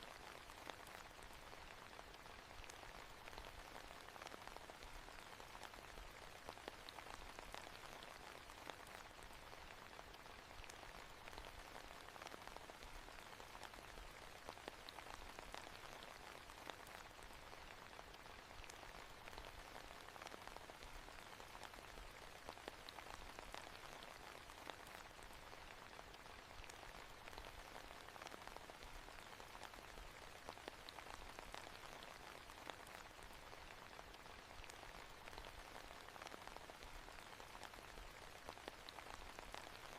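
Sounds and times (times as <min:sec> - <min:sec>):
faint rain falling: 0:00.0 - 0:39.9.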